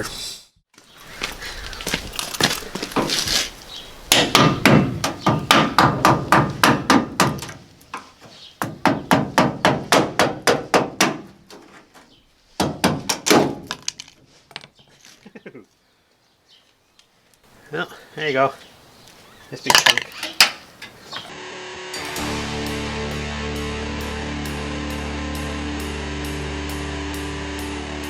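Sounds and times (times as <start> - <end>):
hammer blows on sheet steel: 4.1 - 7.4.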